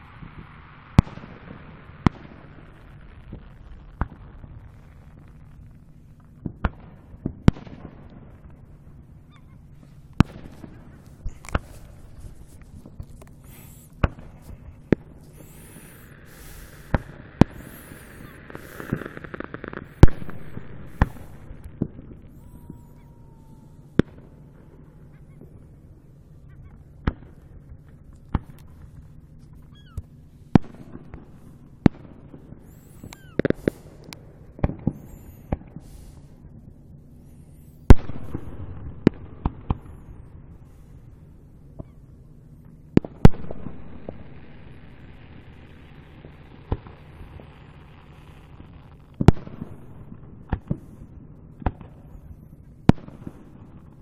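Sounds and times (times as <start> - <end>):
distant fireworks bangs: 0.0 - 54.0
fireworks crackling: 0.0 - 54.0.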